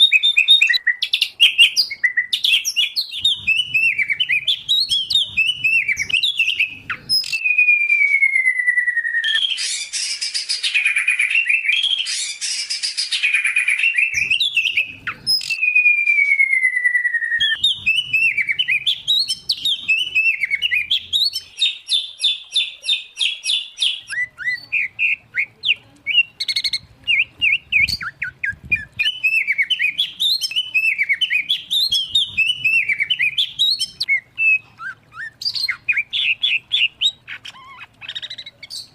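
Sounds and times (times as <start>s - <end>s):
songbirds singing: 0.0s - 38.9s
long falling whistles: 7.4s - 9.6s, 15.6s - 17.6s.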